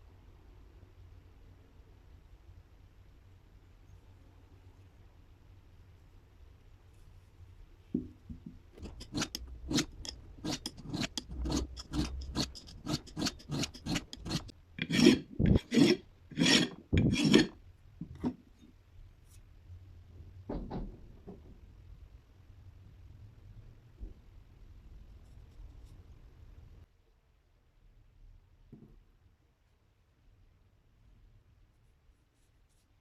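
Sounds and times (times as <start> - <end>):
rasping scraping strokes: 8.8 - 17.6.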